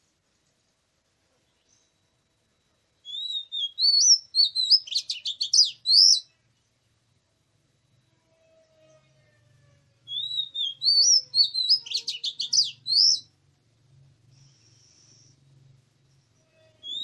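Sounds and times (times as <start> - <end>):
bird singing whistled notes: 1.5 - 6.4, 10.0 - 13.3, 16.3 - 17.0.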